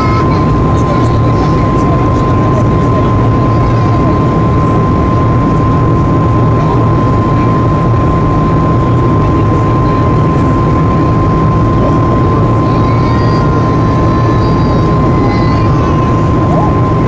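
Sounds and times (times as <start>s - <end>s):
aircraft cabin rumble: 0.0s - 17.0s
thin constant whine: 0.0s - 17.0s.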